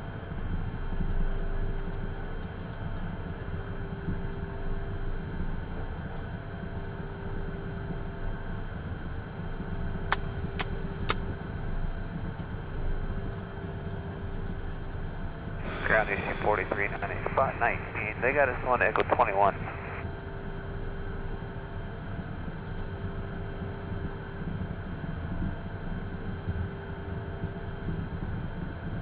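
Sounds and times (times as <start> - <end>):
jet engines idling: 15.5 - 20.0.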